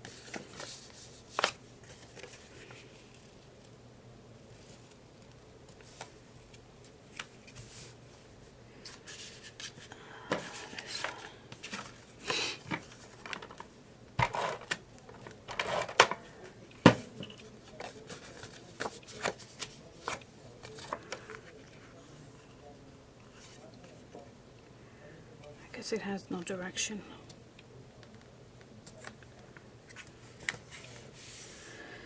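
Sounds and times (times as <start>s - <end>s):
paper rustling and sliding: 0.0s - 3.4s, 8.8s - 14.7s, 29.9s - 31.8s.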